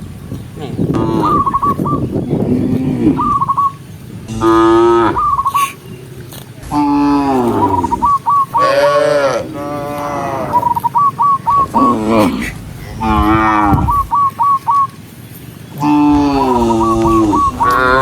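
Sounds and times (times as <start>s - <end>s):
cows mooing: 0.6s - 3.5s, 4.2s - 10.8s, 11.5s - 14.2s, 15.8s - 18.0s.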